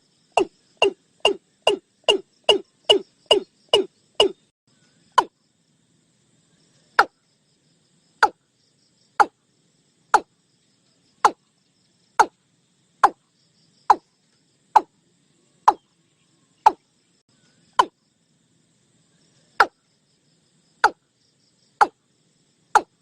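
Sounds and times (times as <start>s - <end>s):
faint insect chirring: 0.0s - 23.0s
bird calling hollow notes: 0.4s - 4.5s, 11.2s - 11.4s, 15.6s - 15.9s, 16.6s - 16.9s, 17.7s - 18.0s, 19.6s - 19.8s, 20.8s - 21.0s, 22.8s - 23.0s.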